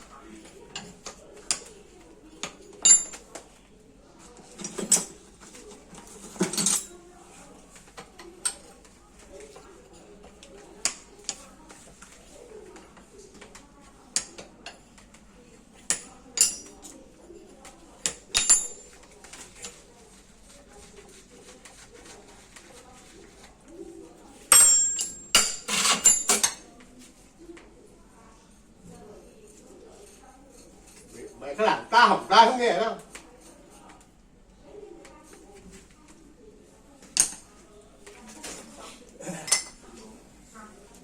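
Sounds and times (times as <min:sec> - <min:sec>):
metal tools clinking and knocking: 0:02.4 - 0:03.4, 0:04.5 - 0:07.0, 0:15.9 - 0:17.0, 0:18.0 - 0:19.0, 0:24.5 - 0:26.6, 0:39.4 - 0:39.8.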